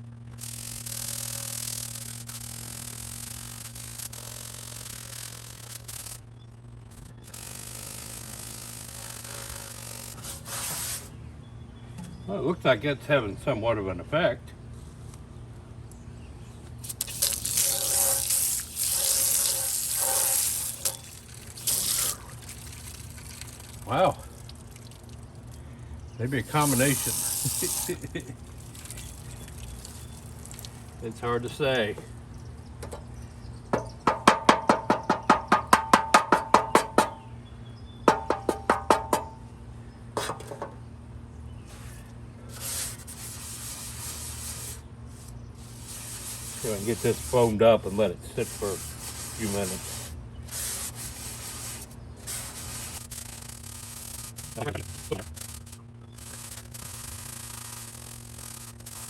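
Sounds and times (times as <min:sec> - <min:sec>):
aerosol can rattling: 0:16.8 - 0:25.2, 0:26.3 - 0:31.0
aerosol spray hiss: 0:26.4 - 0:28.3, 0:48.4 - 0:55.6, 0:56.2 - 0:59.0.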